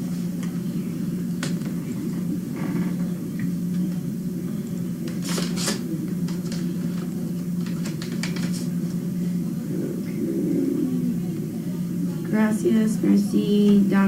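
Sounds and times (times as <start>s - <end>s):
low mechanical hum: 0.0s - 14.0s
paper rustling: 5.1s - 8.7s.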